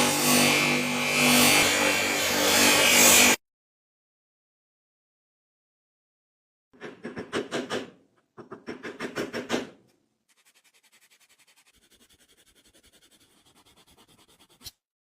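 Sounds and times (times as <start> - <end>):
hand scrubbing scraping strokes: 10.3 - 14.8.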